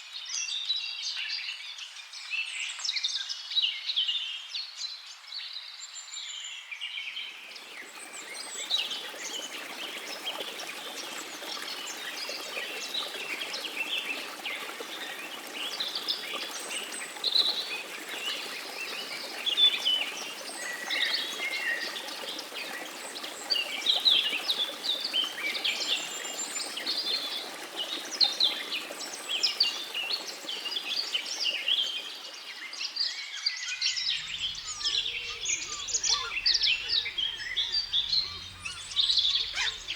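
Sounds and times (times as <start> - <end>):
birds singing and chirping: 7.5 - 39.9.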